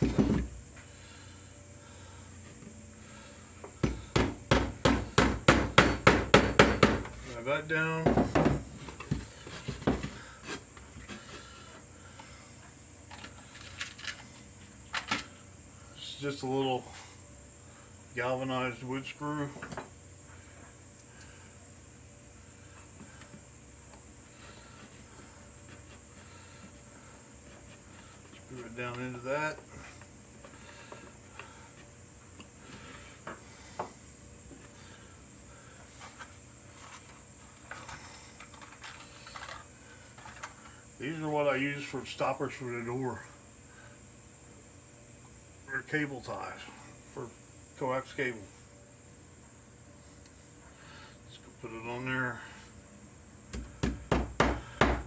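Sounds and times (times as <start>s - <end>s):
wood and tools knocking on workbench: 0.0s - 0.6s, 3.8s - 7.3s, 8.0s - 10.2s, 53.5s - 55.0s.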